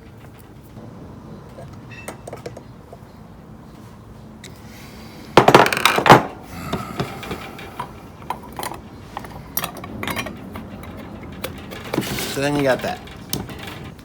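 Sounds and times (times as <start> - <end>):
metal parts clattering on surface: 5.4 - 14.0.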